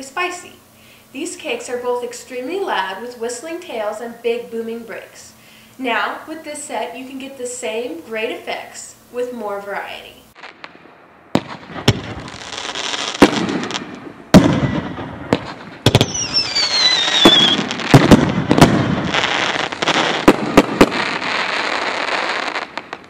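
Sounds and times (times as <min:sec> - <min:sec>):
firework crackling hiss: 0:10.3 - 0:23.0
firework shots and booming breaks: 0:10.4 - 0:23.0
falling firework whistle: 0:15.9 - 0:22.8.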